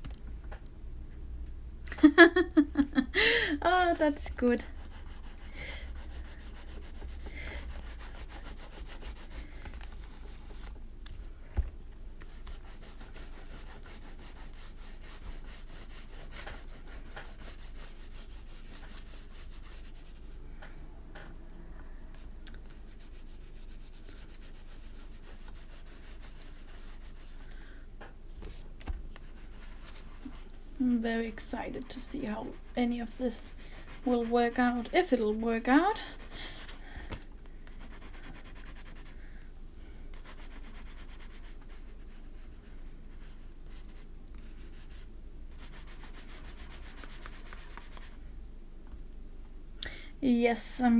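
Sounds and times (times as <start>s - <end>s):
crayon scratching on paper: 2.1s - 10.8s, 12.3s - 20.2s, 22.9s - 27.4s, 29.2s - 37.0s, 37.8s - 39.1s, 40.2s - 48.2s.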